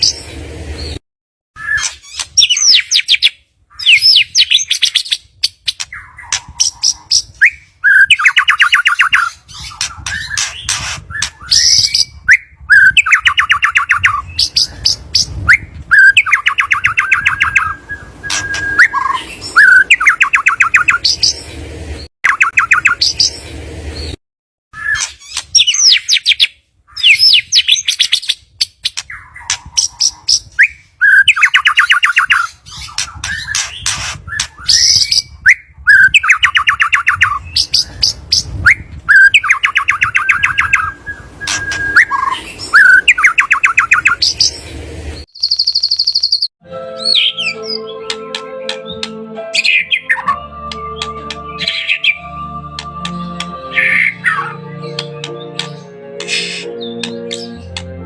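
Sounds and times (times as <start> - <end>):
bird whistled song phrases: 1.6 - 21.4, 22.3 - 23.3, 24.8 - 28.4, 29.0 - 44.5, 45.4 - 48.1
fast rattling bird trill: 1.6 - 21.6, 22.3 - 24.2, 24.8 - 35.4, 36.0 - 44.8, 45.4 - 46.5.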